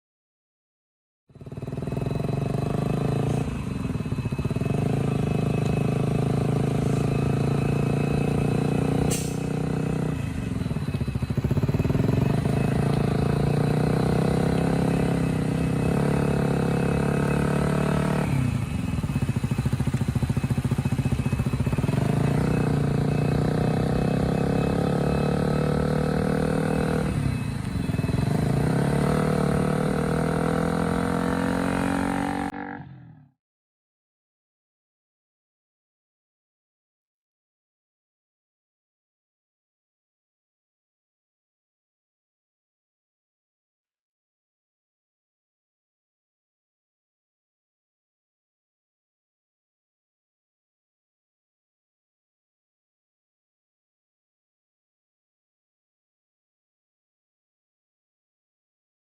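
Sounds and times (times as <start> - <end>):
motorcycle engine at high revs: 1.3 - 33.4.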